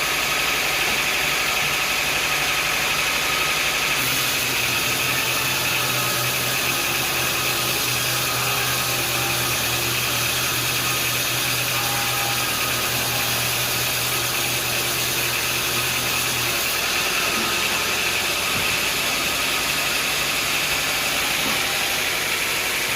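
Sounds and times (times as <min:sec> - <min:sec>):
motor hum: 0:00.0 - 0:22.9
machinery hiss: 0:04.0 - 0:06.8.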